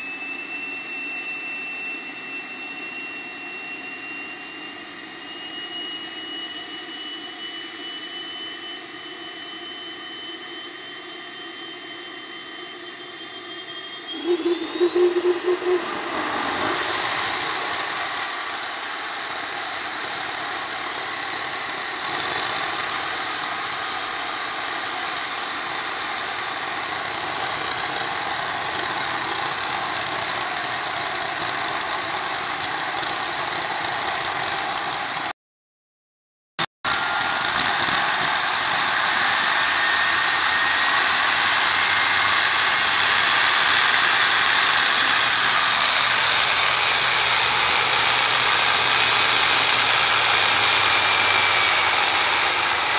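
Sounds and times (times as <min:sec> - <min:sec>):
gas turbine engine whine: 0:00.0 - 0:35.3, 0:36.9 - 0:52.9
loud pulsing: 0:11.8 - 0:28.5, 0:36.9 - 0:52.9.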